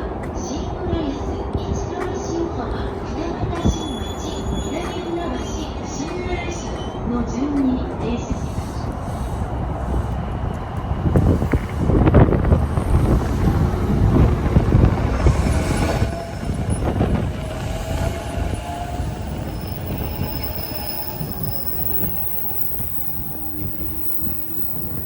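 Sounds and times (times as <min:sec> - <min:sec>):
high-pitched wheel squeal: 0:03.7 - 0:05.2, 0:15.5 - 0:25.0.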